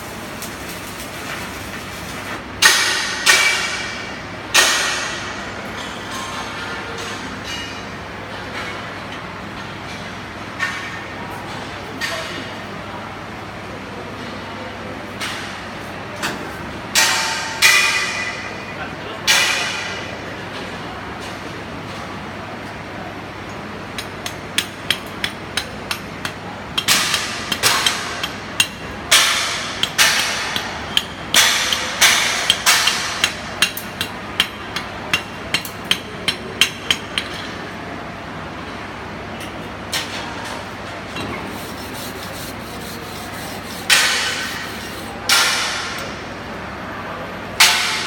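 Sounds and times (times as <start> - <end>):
hammer striking metal: 2.6 - 5.4, 24.0 - 37.5, 47.6 - 48.0.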